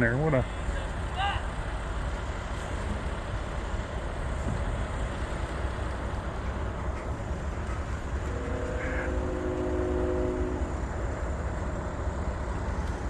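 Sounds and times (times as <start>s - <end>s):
freight train rumbling past: 0.0s - 13.0s
distant locomotive air horn: 7.7s - 11.0s.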